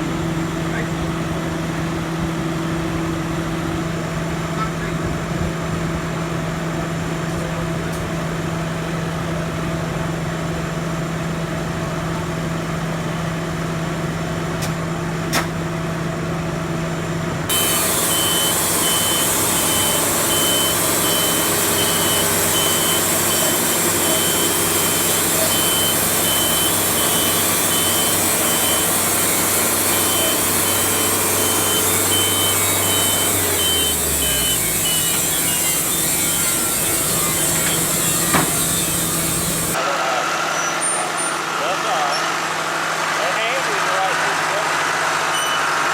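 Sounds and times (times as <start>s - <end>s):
high-pitched beeping: 17.5s - 39.3s
machinery engine running: 17.5s - 39.8s.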